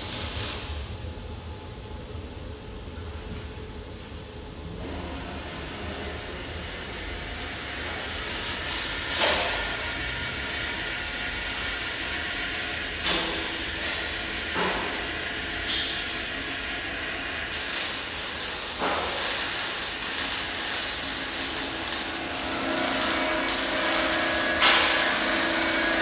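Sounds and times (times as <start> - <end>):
steady machine noise and hiss: 0.0 - 26.0.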